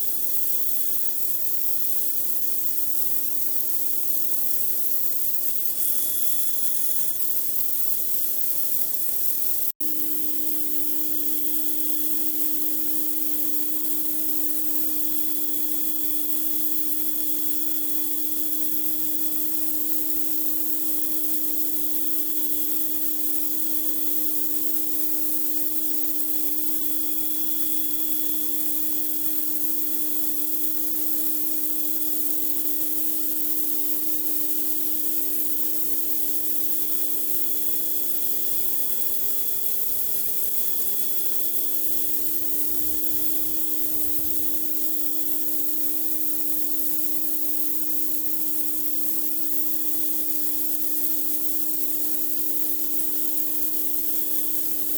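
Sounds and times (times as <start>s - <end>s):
machine humming: 5.8s - 7.4s.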